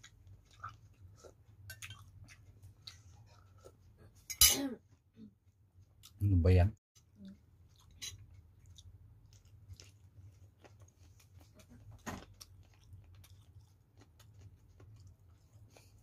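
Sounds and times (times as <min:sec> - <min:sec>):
faint chewing: 0:00.0 - 0:04.2, 0:07.0 - 0:16.0.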